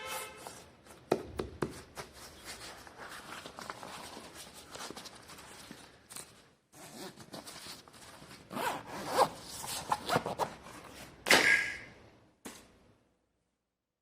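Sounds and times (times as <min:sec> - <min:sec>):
zipper being pulled: 0:06.7 - 0:07.6, 0:08.5 - 0:10.5.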